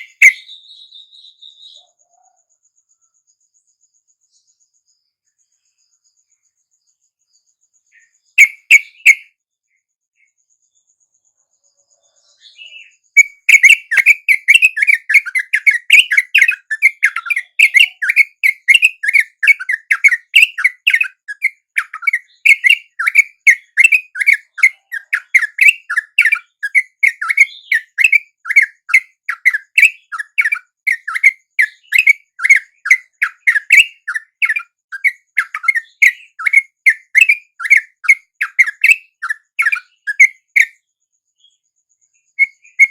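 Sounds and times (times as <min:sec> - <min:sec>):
bird chattering chirps: 0:00.0 - 0:02.3, 0:08.0 - 0:09.3, 0:12.4 - 0:40.8, 0:42.4 - 0:42.9.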